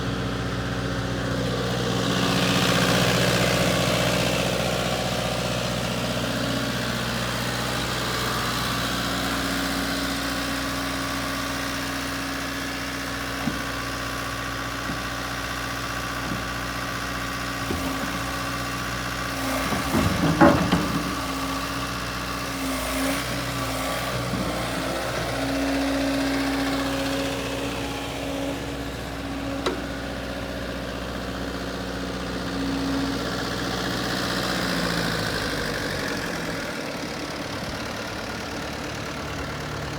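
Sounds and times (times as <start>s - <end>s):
excavator diesel engine idling: 0.0s - 39.9s
clanks and knocks: 16.2s - 16.8s, 17.6s - 18.5s, 19.4s - 21.7s.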